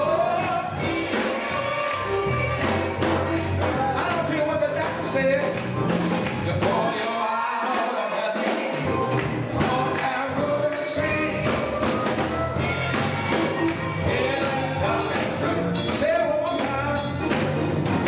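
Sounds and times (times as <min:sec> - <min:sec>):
gospel choir singing with band: 0:00.0 - 0:18.0
tambourine shaking: 0:00.0 - 0:18.0
low bass: 0:02.0 - 0:06.8.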